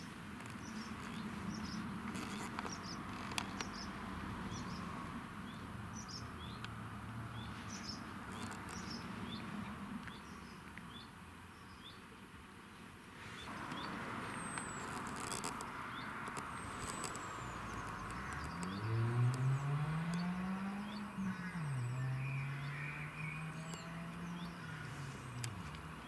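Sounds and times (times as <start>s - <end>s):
small birds chirping: 0.0s - 12.1s, 13.2s - 26.0s
sharp clicks: 14.5s - 20.3s, 25.3s - 25.9s.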